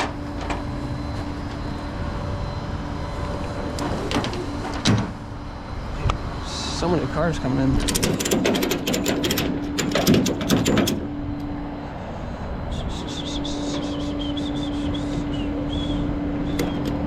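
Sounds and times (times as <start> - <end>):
tow truck engine hum: 0.0 - 17.0
rapid mechanical clicking: 7.8 - 11.1, 16.5 - 17.0.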